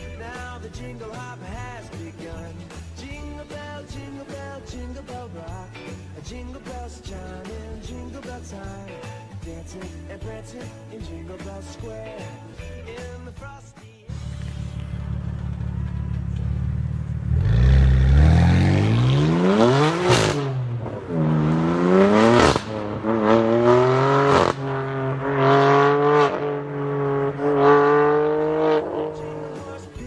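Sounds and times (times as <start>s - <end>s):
car engine accelerating through gears: 14.1s - 29.6s.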